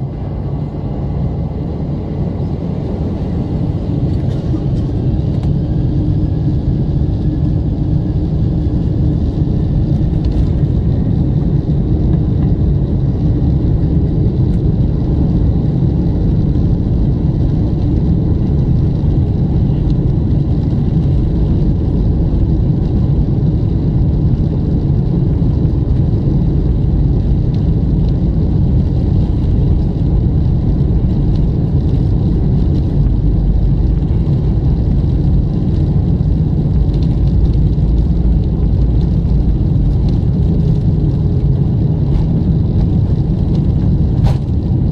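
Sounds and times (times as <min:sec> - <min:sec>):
airplane cabin engine rumble: 0:00.0 - 0:44.9.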